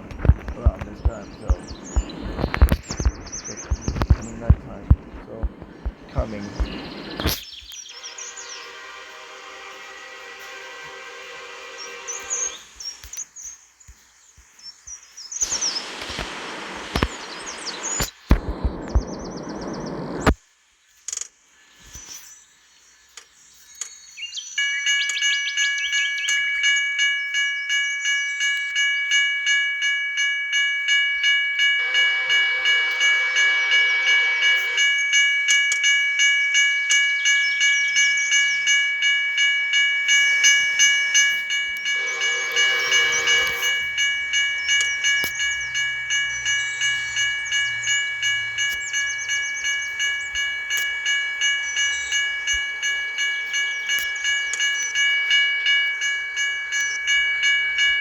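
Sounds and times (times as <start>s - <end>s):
faint diesel engine rumble: 0.0s - 7.3s
crossing bell ringing: 0.0s - 7.4s, 8.0s - 12.8s, 24.6s - 58.0s
locomotive horn blasts: 8.0s - 12.7s, 31.8s - 35.2s, 40.3s - 45.6s.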